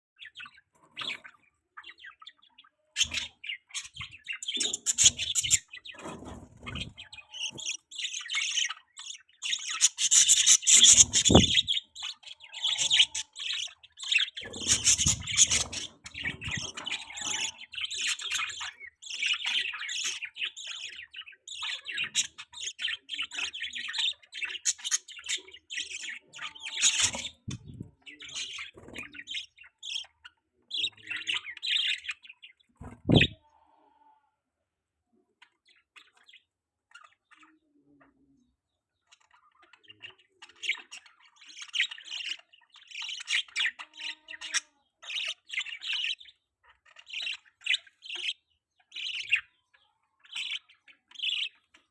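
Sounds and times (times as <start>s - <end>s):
budgie chirping: 3.0s - 5.8s, 9.6s - 12.1s, 14.2s - 18.5s, 32.8s - 33.4s.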